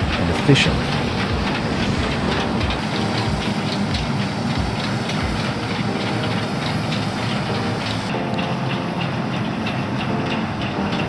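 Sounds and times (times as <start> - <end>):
low thumps: 0.0 - 5.8
excavator engine running: 0.0 - 11.0.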